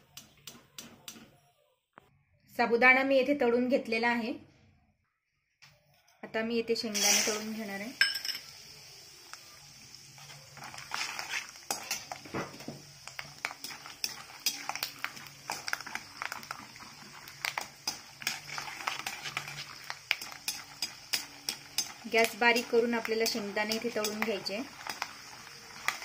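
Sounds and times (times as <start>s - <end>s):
peanuts sizzling in hot oil: 6.7s - 26.0s
spoon scraping and clinking pan: 13.4s - 16.5s, 17.5s - 22.3s.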